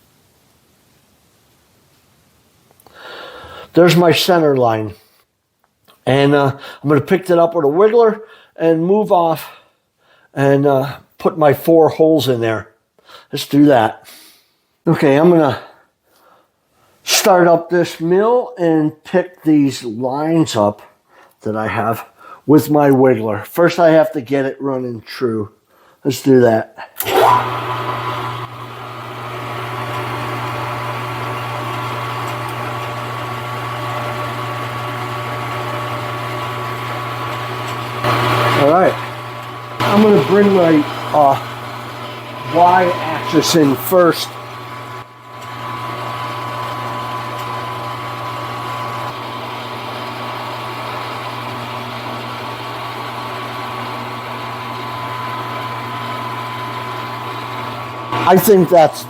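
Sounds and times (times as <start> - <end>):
milling machine motor humming: 27.0 - 59.0.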